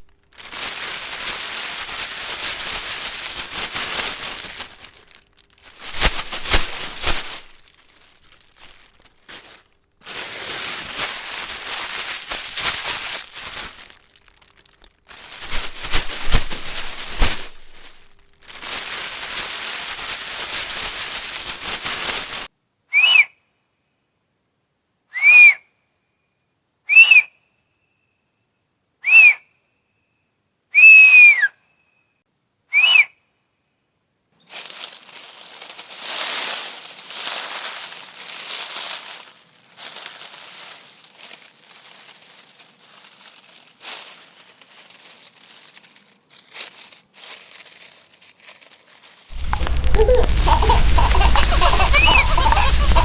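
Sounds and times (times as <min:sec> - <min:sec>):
rustling crinkling noise: 0:00.0 - 0:22.5, 0:34.4 - 0:53.0.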